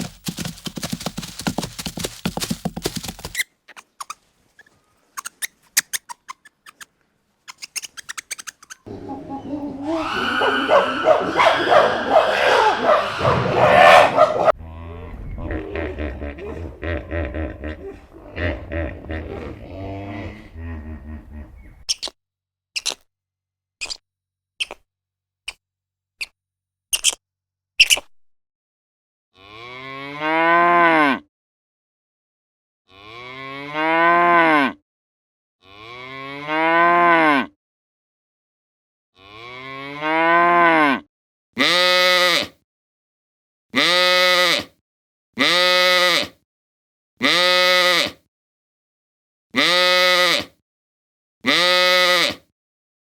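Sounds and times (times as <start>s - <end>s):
brief squeaks or clicks: 3.3s - 6.9s, 7.5s - 8.9s, 21.8s - 22.2s, 22.8s - 23.1s, 23.8s - 24.0s, 24.6s - 24.9s, 26.2s - 27.2s, 27.8s - 28.2s.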